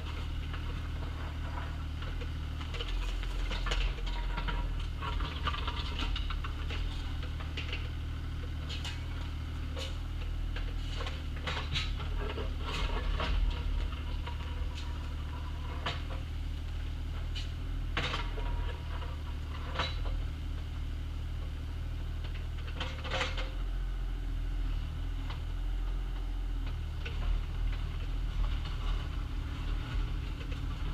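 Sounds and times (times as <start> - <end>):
excavator engine running: 0.0 - 30.9.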